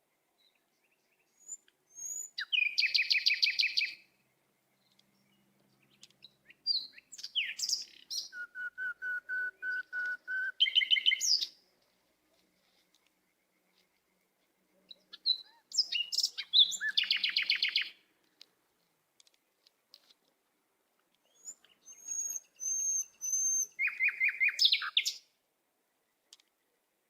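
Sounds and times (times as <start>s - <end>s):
small bird chirping and trilling: 0.9s - 4.0s, 4.8s - 8.4s, 10.6s - 11.5s, 14.9s - 18.0s, 21.2s - 25.2s
short high whistled bird notes: 21.3s - 25.2s.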